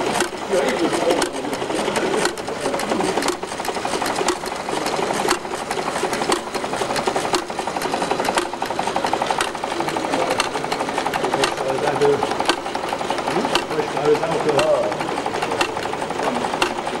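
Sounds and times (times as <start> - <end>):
engine knock: 0.0 - 17.0
small engine clattering: 0.0 - 17.0.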